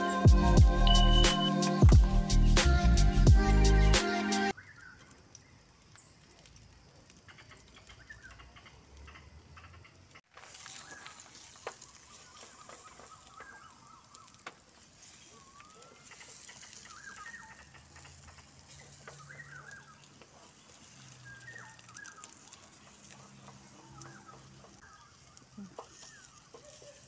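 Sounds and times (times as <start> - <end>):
birds chirping: 4.4 - 27.0
food sizzling on grill pan: 10.4 - 27.0.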